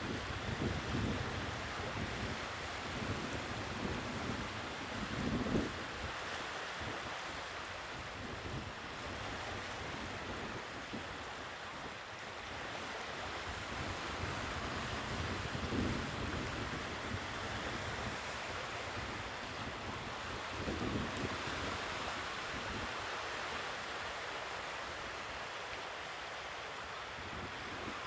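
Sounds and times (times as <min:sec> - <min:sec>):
sea waves washing ashore: 0:00.0 - 0:28.0
wind on microphone: 0:13.2 - 0:23.0.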